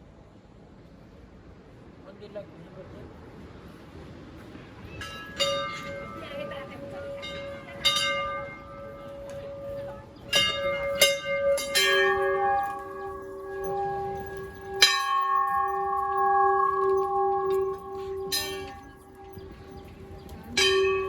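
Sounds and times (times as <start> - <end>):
temple bells ringing: 4.8 - 21.0.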